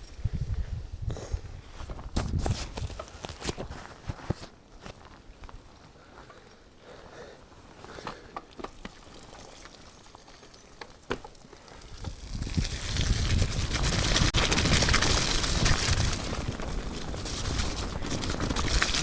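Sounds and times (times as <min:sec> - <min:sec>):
rush of wind and tyre noise: 0:00.0 - 0:04.0, 0:11.9 - 0:19.0
bike clicks and knocks: 0:02.2 - 0:19.0.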